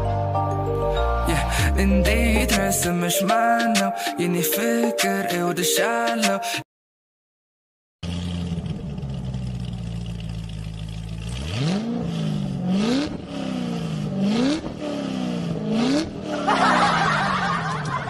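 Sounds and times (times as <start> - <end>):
car engine idling and revving: 8.0 - 18.0.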